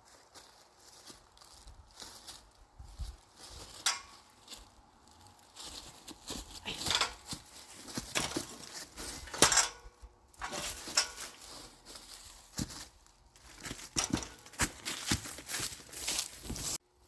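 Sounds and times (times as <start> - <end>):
light knocks and metallic clinks: 6.8 - 11.6, 13.9 - 14.7.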